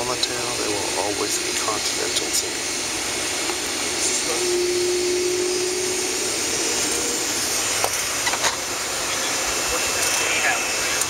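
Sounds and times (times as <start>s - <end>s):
jet engines idling: 0.0s - 11.0s.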